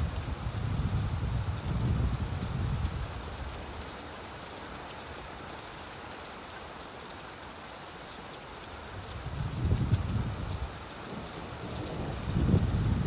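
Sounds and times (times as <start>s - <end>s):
steady rainfall: 0.0s - 13.0s
low rumble of thunder: 9.3s - 13.0s.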